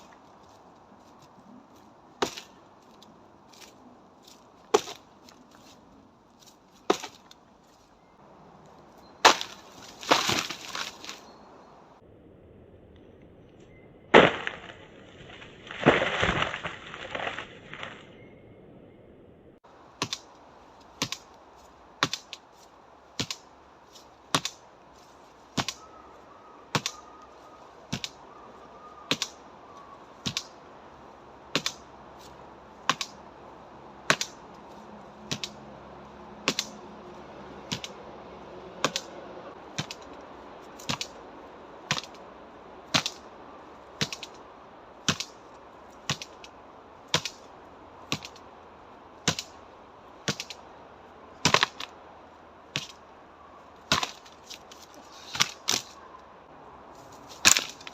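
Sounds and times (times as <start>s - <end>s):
sharp knocks on tree trunk: 4.7s - 5.0s, 6.9s - 7.3s, 9.2s - 11.2s, 22.0s - 22.4s, 23.2s - 23.4s, 25.6s - 25.8s, 26.7s - 27.0s, 35.2s - 35.6s, 36.4s - 36.8s, 37.7s - 38.0s, 39.7s - 40.1s, 40.8s - 41.2s, 41.9s - 42.2s, 42.9s - 43.2s, 44.0s - 44.4s, 48.1s - 48.4s, 51.4s - 51.9s, 52.7s - 53.0s, 53.8s - 54.4s
wood crashing and breaking: 9.2s - 11.2s, 14.1s - 17.5s.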